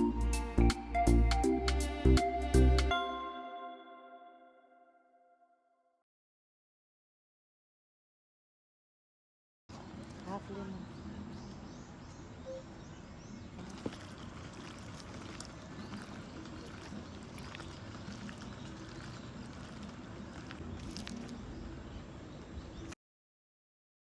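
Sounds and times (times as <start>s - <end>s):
river water flowing: 13.6s - 21.5s.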